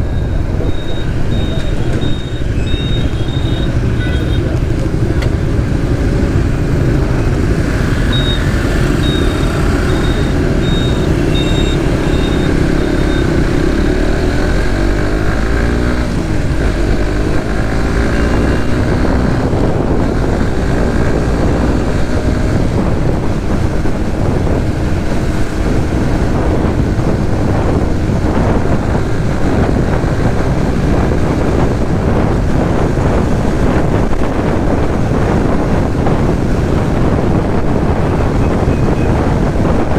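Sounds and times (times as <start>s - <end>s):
short high beeps: 0.0s - 4.4s, 7.6s - 14.0s
motorcycle engine running: 0.0s - 39.9s
wind buffeting microphone: 0.0s - 39.9s.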